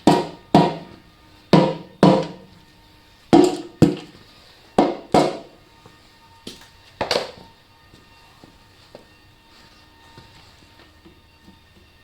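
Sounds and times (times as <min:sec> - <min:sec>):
hammer striking metal: 0:00.0 - 0:01.0, 0:01.6 - 0:02.5, 0:03.4 - 0:04.2, 0:04.8 - 0:05.5.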